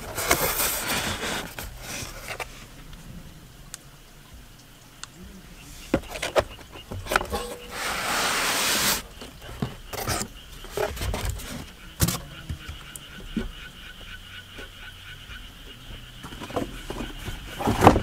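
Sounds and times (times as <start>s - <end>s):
loud rustling or sliding: 0.0s - 2.8s, 7.1s - 9.2s
faint insect chirring: 0.5s - 18.0s.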